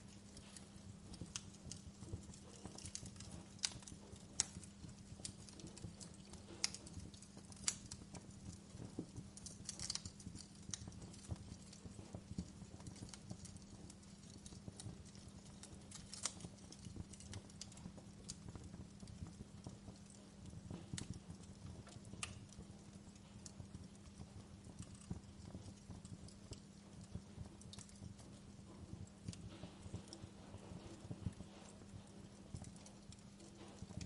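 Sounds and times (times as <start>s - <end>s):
fire low rumble: 0.0s - 34.0s
wood fire crackling and popping: 0.0s - 34.0s.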